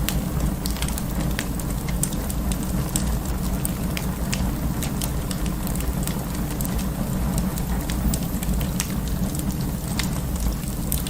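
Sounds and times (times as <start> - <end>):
fire crackling and popping: 0.0 - 11.0.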